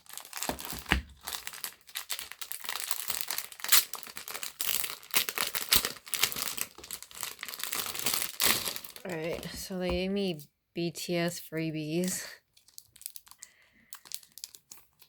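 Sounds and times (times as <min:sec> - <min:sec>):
packaging being torn open: 0:00.0 - 0:09.2, 0:12.5 - 0:15.0
packaging crinkling and rustling: 0:00.0 - 0:10.1, 0:12.4 - 0:15.0.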